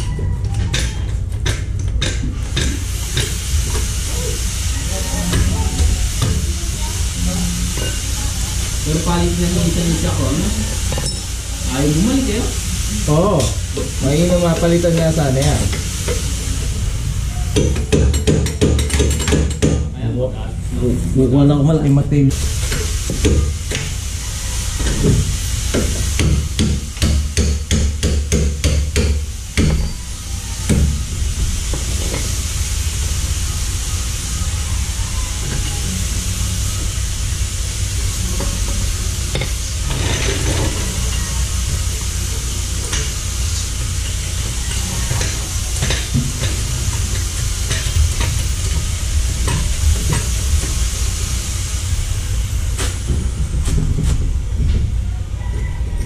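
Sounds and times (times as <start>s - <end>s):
steady hiss: 1.1s - 55.4s
low rumble: 2.9s - 11.7s.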